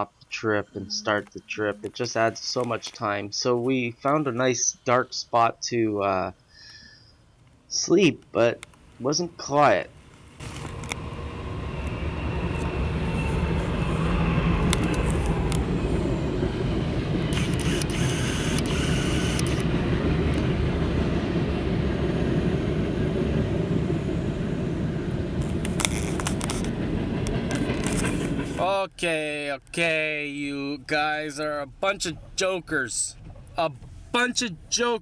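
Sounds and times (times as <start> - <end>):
train rumbling past: 7.7 - 34.8
sharp clicks: 14.6 - 15.7, 17.3 - 20.5.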